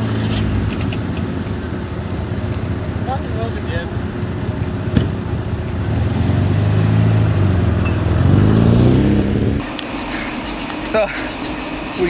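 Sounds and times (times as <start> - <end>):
car engine accelerating: 0.0 - 10.8.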